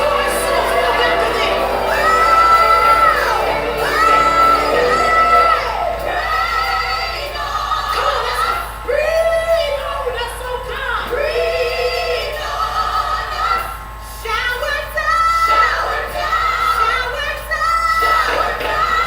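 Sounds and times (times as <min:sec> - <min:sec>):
backing music: 0:00.0 - 0:07.4
woman singing gospel: 0:00.0 - 0:19.0.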